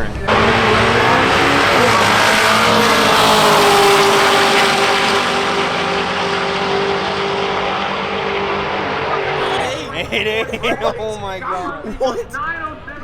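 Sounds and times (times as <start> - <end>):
race car engines at high revs: 0.0 - 11.9.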